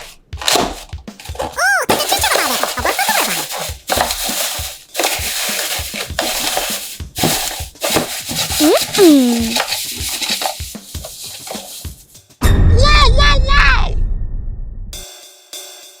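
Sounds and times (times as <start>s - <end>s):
paper crinkling and crushing: 1.2s - 11.8s.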